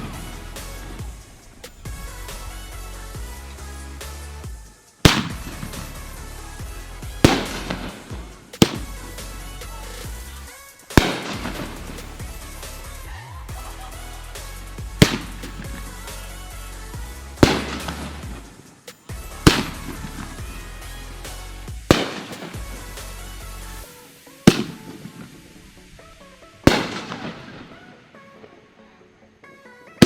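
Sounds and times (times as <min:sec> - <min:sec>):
background music: 0:00.0 - 0:30.0
fireworks booming: 0:04.4 - 0:10.3, 0:11.0 - 0:12.6, 0:14.8 - 0:16.1, 0:17.0 - 0:20.9, 0:21.7 - 0:23.2, 0:24.4 - 0:27.9.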